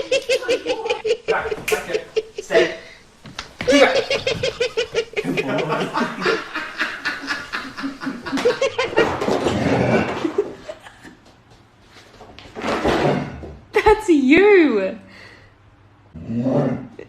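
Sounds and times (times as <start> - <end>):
person snickering: 0.0 - 2.6, 3.6 - 9.0.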